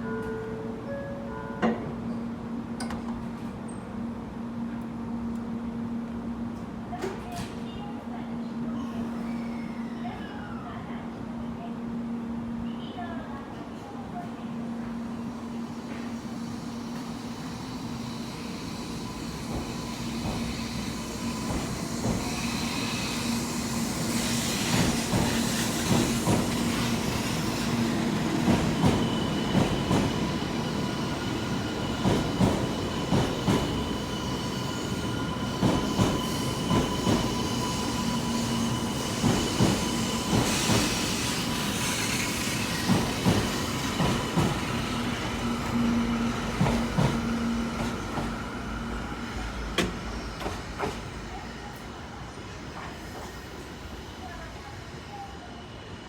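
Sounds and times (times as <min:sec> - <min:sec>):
train hum: 0:00.0 - 0:56.0.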